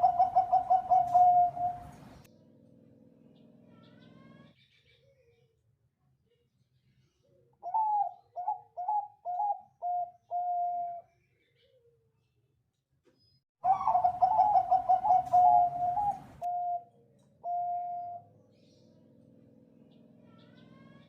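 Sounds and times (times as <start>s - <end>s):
dove cooing: 0.0s - 2.2s, 7.6s - 11.0s, 13.6s - 18.3s.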